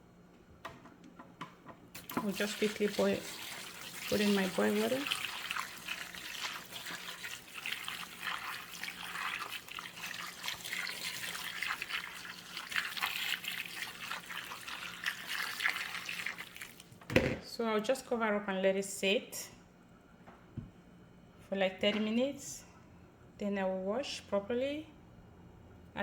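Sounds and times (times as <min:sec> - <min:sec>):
water pouring and splashing: 0:02.0 - 0:16.9.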